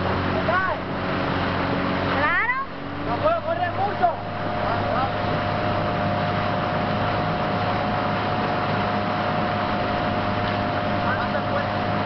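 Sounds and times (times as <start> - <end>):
motorboat engine humming: 0.0 - 12.0
water rushing: 0.0 - 12.0
wind: 0.0 - 12.0.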